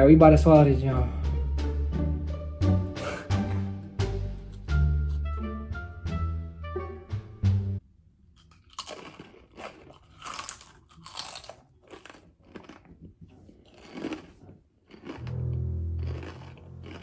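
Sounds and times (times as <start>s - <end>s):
brief music: 0.0s - 7.8s, 15.2s - 17.0s
chewing crunchy chips: 8.4s - 17.0s.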